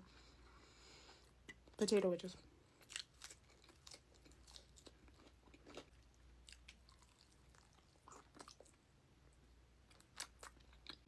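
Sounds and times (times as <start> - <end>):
person chewing: 2.8 - 8.8, 9.9 - 11.0.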